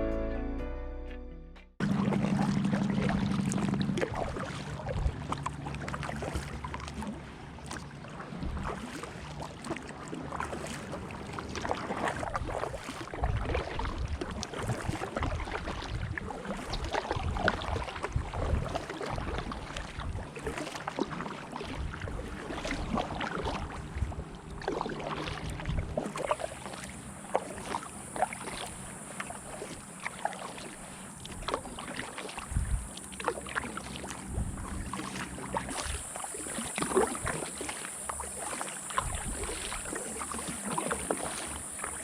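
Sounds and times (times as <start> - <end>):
paddle splashing in water: 1.8 - 42.0
steady low hum: 32.4 - 42.0.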